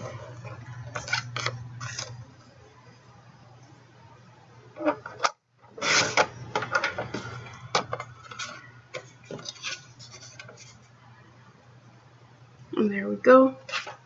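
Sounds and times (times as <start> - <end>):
paper rubbing and sliding: 0.0 - 2.3, 5.7 - 7.4, 8.2 - 10.9.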